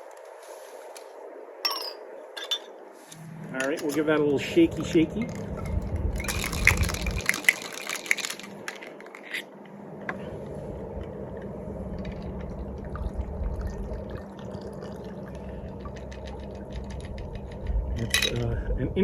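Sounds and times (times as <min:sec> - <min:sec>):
glass clinks: 0:01.6 - 0:02.8
ice rattling in cocktail shaker: 0:03.6 - 0:09.5, 0:15.7 - 0:18.5
drink pouring trickle: 0:04.6 - 0:09.2, 0:11.0 - 0:18.2
faint drips: 0:10.4 - 0:18.8.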